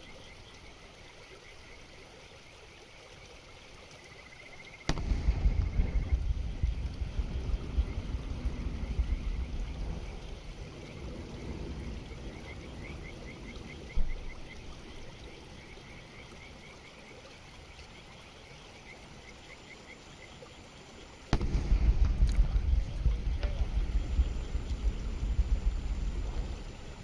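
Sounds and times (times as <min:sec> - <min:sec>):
firework shell boom: 0:04.9 - 0:06.6, 0:21.4 - 0:24.0
loud low rumble: 0:21.4 - 0:26.8.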